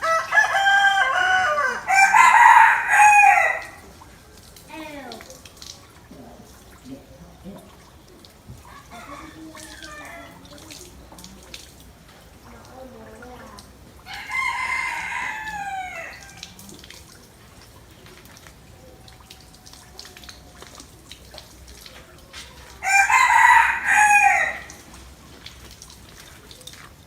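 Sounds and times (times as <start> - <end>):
rooster crowing: 0.0 - 3.8, 8.6 - 10.4, 14.1 - 16.5, 22.8 - 24.9.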